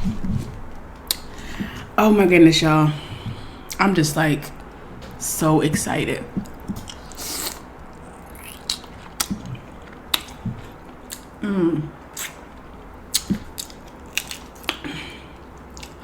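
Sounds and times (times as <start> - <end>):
person humming mm: 11.4 - 12.0
crab shells cracking: 12.2 - 14.9.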